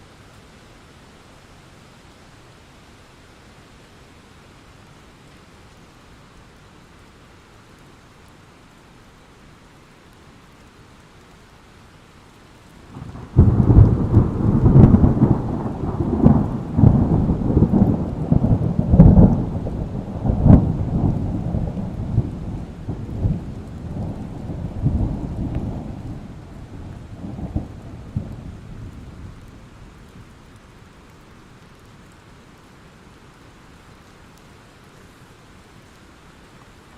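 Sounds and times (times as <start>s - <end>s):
steady rain: 0.0s - 36.9s
thunder rolling and cracking: 12.9s - 29.5s.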